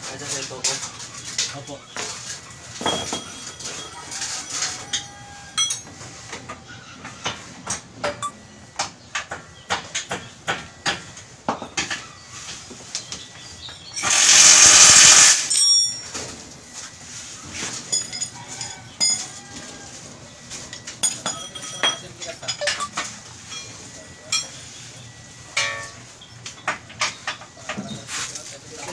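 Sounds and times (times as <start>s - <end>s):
metal tools clinking and knocking: 2.7s - 6.0s, 15.5s - 17.0s, 17.6s - 19.8s, 20.6s - 24.7s, 25.5s - 28.1s
loud hiss: 14.0s - 15.6s.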